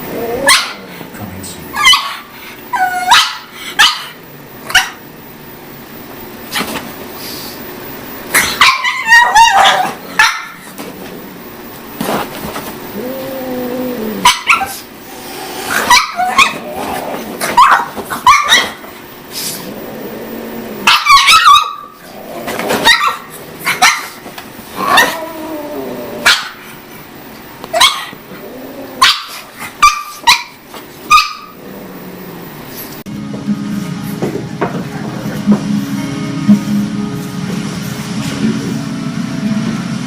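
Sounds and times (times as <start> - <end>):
dog barking: 0.5 - 0.8, 1.8 - 2.3, 3.0 - 5.0, 8.4 - 10.6, 14.2 - 14.8, 15.8 - 16.6, 17.6 - 18.8, 20.9 - 22.0, 22.8 - 24.2, 26.2 - 26.6, 27.7 - 28.1, 29.0 - 31.6.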